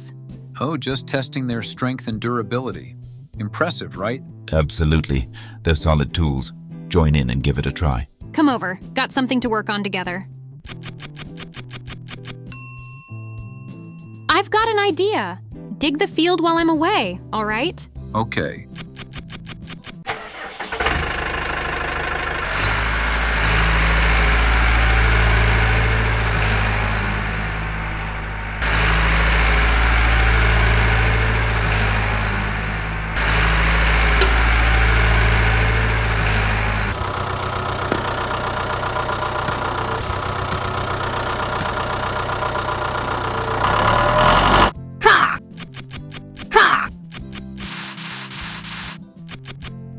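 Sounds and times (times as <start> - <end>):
tractor engine running: 10.7 - 12.4, 18.8 - 44.7, 47.1 - 49.7.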